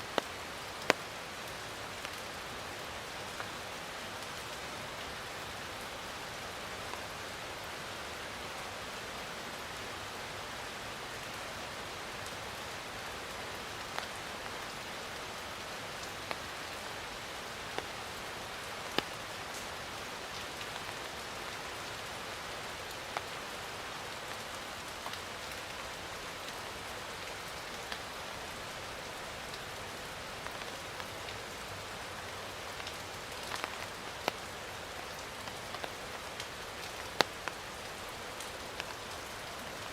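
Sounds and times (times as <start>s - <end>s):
steady rain: 0.0s - 39.9s
raindrops striking surface: 0.1s - 2.4s, 17.3s - 25.8s, 28.8s - 39.9s.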